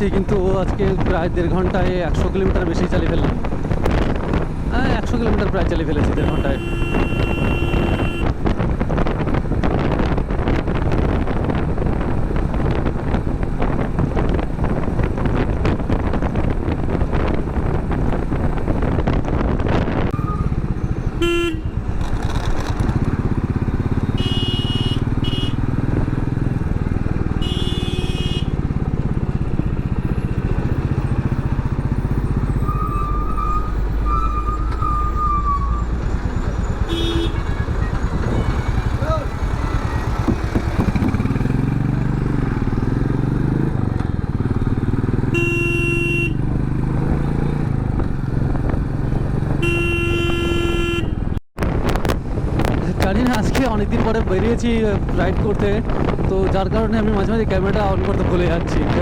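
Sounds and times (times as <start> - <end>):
wind rushing over microphone: 0.0 - 45.5, 46.3 - 59.0
traffic: 0.0 - 59.0
motorcycle engine: 1.9 - 8.4, 9.5 - 54.0
vehicle horn honks: 6.2 - 8.3, 21.2 - 21.8, 24.1 - 25.6, 27.4 - 28.6, 36.8 - 39.0, 45.3 - 46.4, 49.6 - 51.4.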